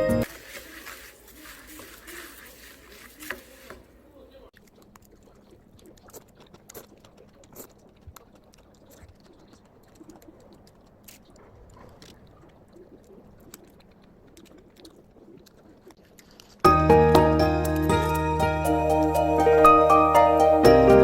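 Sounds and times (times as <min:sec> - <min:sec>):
soft chewing: 0:00.2 - 0:16.7.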